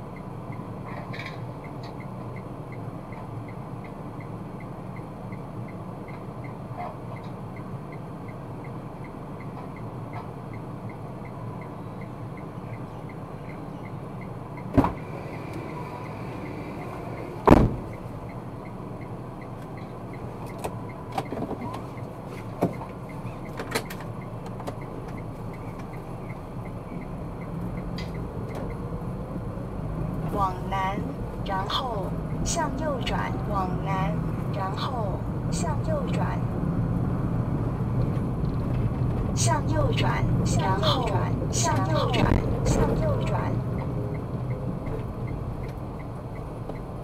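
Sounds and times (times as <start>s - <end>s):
car road and engine noise: 0.0s - 47.0s
sharp thumps: 17.4s - 18.0s
faint regular ticking: 40.2s - 47.0s.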